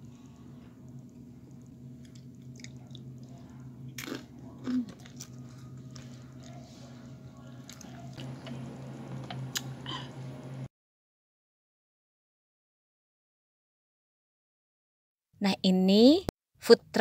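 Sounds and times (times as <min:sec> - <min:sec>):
low hum: 0:00.0 - 0:10.7
person crunching chips: 0:03.9 - 0:06.5.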